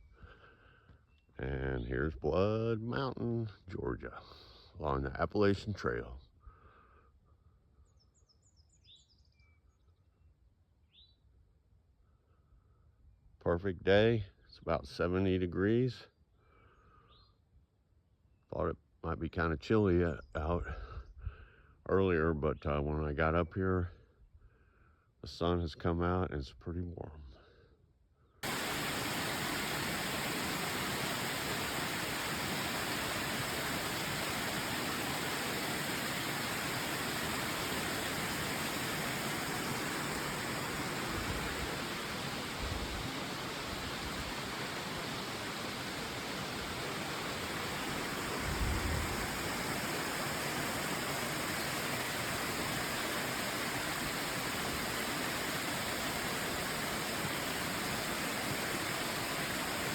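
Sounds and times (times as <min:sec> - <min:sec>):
waterfall rushing: 0:28.4 - 0:59.9.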